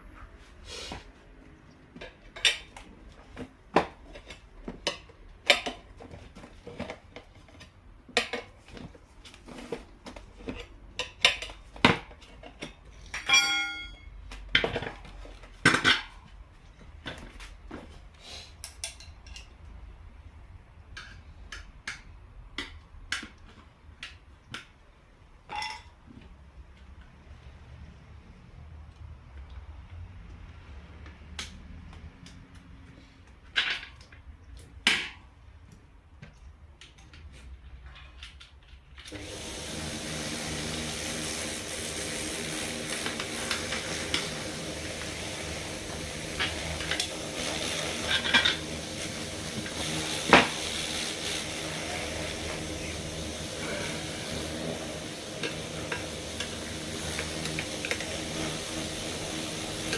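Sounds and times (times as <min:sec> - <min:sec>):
metal tools clinking: 0:13.1 - 0:14.1
ringing metal clang: 0:13.3 - 0:14.1.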